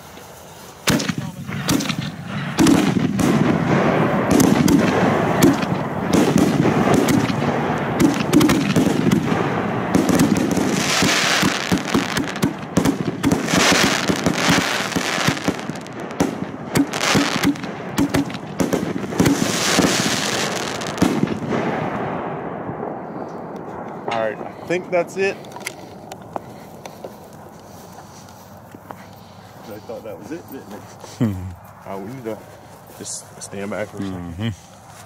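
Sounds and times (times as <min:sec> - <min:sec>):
firework hissing: 0:00.0 - 0:21.6
firework crackling pops: 0:00.0 - 0:28.6.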